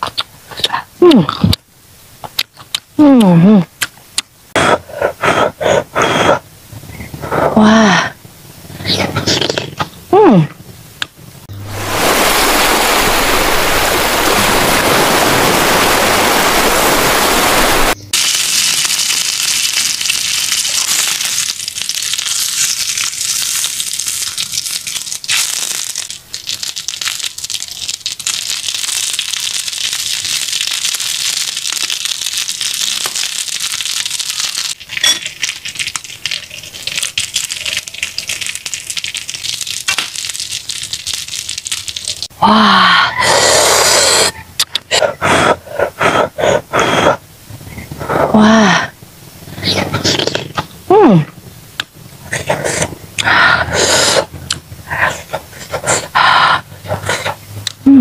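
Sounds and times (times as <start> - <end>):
fish sizzling on hot plate: 11.6 - 42.3
wood fire rushing: 11.6 - 42.3.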